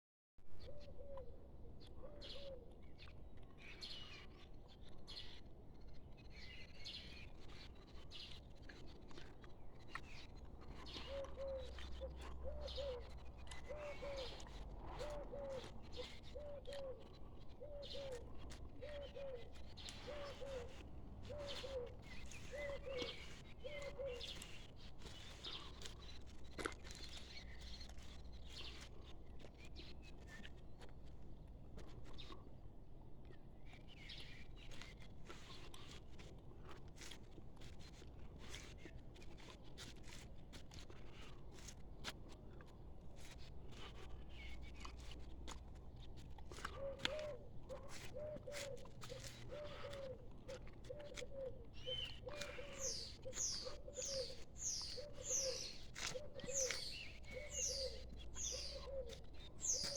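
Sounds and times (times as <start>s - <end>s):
birds chirping and singing: 9.9s - 26.2s, 46.8s - 50.2s, 50.8s - 59.9s
low bird call: 50.8s - 59.9s.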